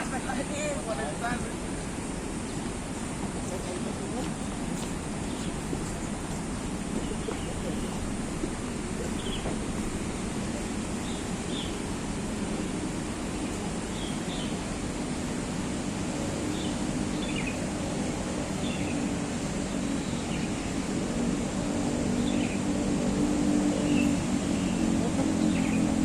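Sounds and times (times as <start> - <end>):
city traffic rumble: 0.0 - 26.0
bird chirping: 4.3 - 9.8, 10.4 - 11.9, 13.4 - 14.7, 16.5 - 17.7, 23.8 - 26.0.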